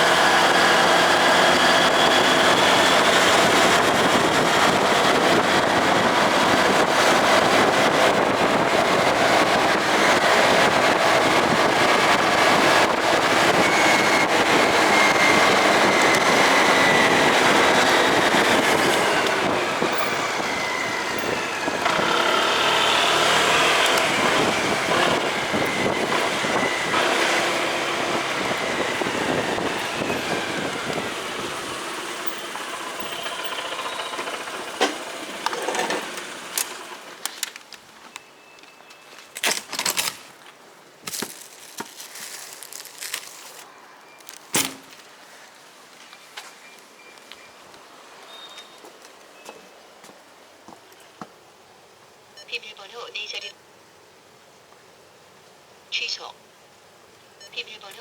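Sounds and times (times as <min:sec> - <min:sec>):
motorcycle engine running: 0:00.0 - 0:37.2
road and wind noise: 0:00.0 - 0:58.0.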